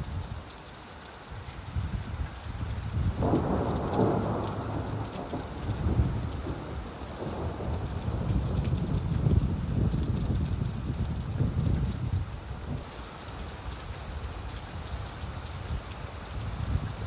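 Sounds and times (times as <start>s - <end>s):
steady rainfall: 0.0s - 17.0s
low roll of thunder: 2.7s - 12.8s.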